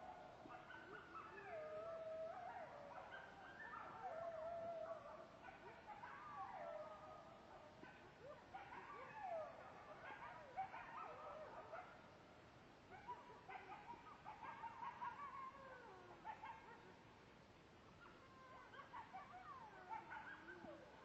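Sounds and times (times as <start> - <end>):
wolves howling: 0.0 - 11.8, 18.0 - 21.0
wolf yips: 2.3 - 11.9, 12.9 - 16.9, 17.9 - 21.0.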